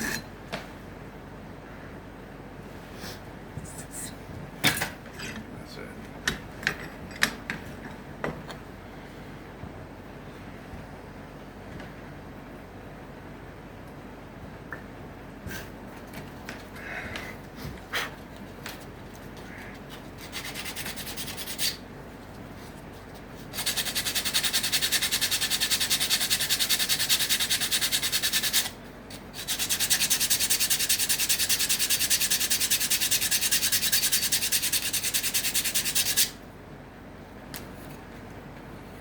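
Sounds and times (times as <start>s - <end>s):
scratchy rubbing on wooden comb: 20.2s - 21.8s, 23.5s - 36.4s.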